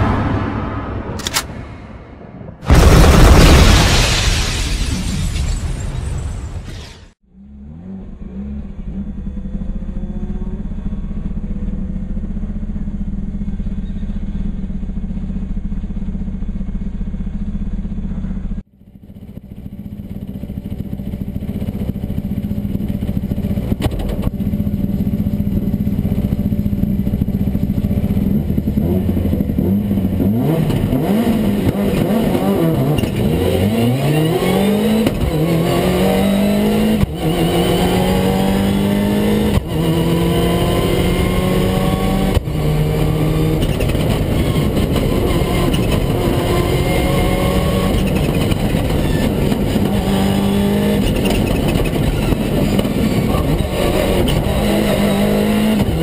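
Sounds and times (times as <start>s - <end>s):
rally car engine idling and revving: 7.2s - 56.0s.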